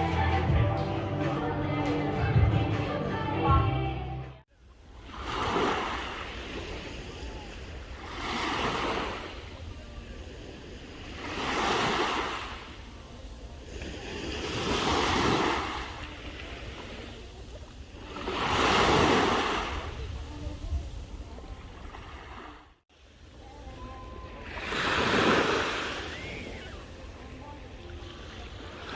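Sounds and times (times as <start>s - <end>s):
sea waves washing onto shore: 4.8s - 28.9s
wind rumble on microphone: 12.7s - 24.4s.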